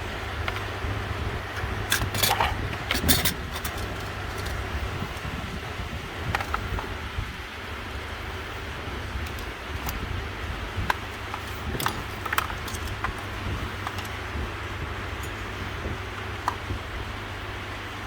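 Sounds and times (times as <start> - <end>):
steady low hum: 0.0 - 18.0
plastic connectors clicking and rattling: 1.6 - 5.3, 9.1 - 10.2, 10.8 - 14.3.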